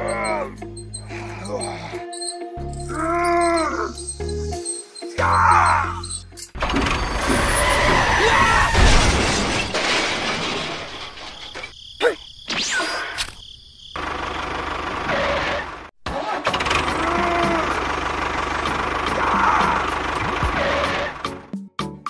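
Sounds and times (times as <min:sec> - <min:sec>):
crash sound effect: 0:06.6 - 0:11.7
vehicle engine sound effect: 0:16.5 - 0:21.4.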